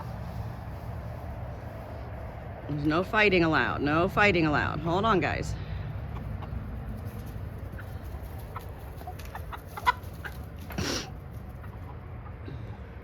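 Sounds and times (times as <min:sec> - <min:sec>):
chickens clucking: 0:05.6 - 0:13.0.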